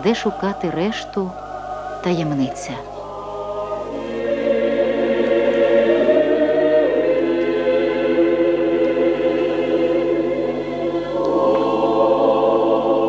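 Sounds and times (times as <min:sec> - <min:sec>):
choir singing a cappella: 0:00.0 - 0:13.0.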